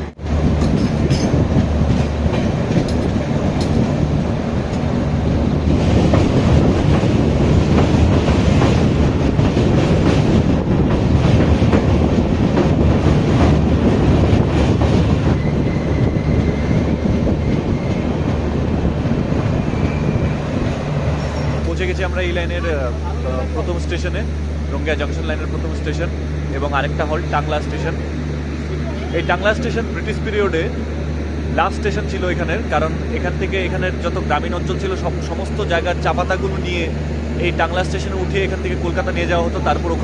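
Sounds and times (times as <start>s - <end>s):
train wheels clattering on rails: 0.4s - 21.8s.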